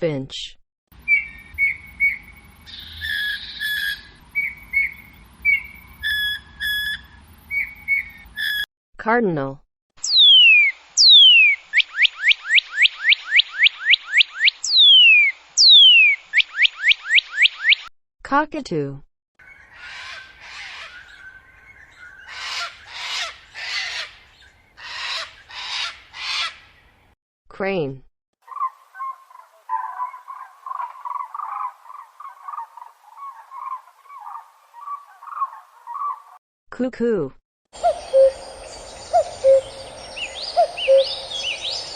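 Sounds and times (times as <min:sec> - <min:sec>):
cranes calling: 0:19.4 - 0:26.6, 0:37.8 - 0:41.9.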